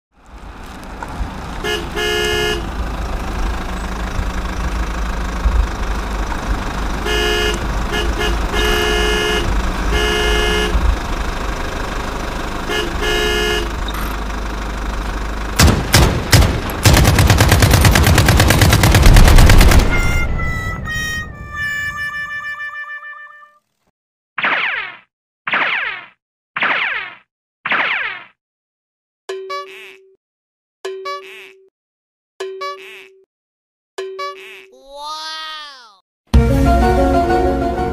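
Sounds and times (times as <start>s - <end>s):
truck engine rumbling: 0.2s - 22.9s, 36.4s - 37.9s
truck horn honking: 1.6s - 3.1s, 6.8s - 11.5s, 12.5s - 14.3s, 19.8s - 23.6s, 34.1s - 34.7s, 36.4s - 37.9s
sharp cracks: 15.6s - 20.2s.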